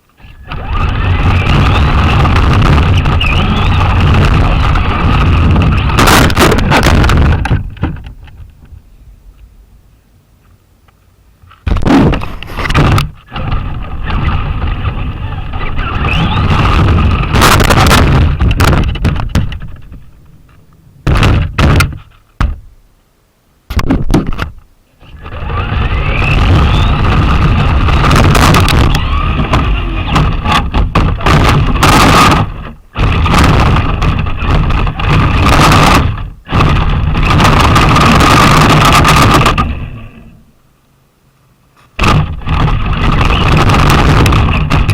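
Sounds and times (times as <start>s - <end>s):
rattling chassis and tyre noise: 0.0s - 9.5s, 11.4s - 22.8s, 24.3s - 40.6s, 41.6s - 44.9s
electric motor whine: 0.2s - 7.1s, 13.3s - 18.6s, 25.0s - 40.5s.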